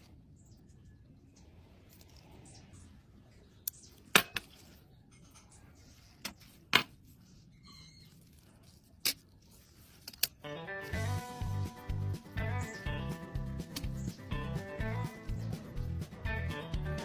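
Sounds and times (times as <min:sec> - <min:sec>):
music: 0:10.4 - 0:17.0.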